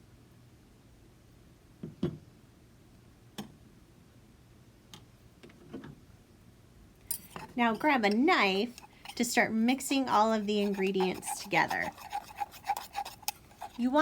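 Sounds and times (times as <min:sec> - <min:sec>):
kitchen utensils clicking and knocking: 0:07.1 - 0:14.0.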